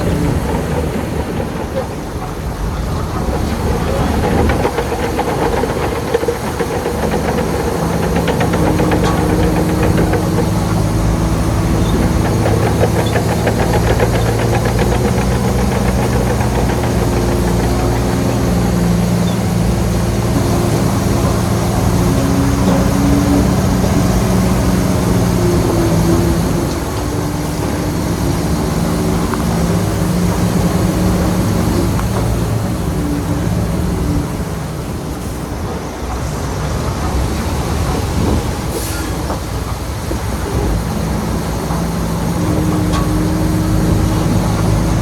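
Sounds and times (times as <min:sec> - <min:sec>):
diesel engine clattering: 0:00.0 - 0:45.0.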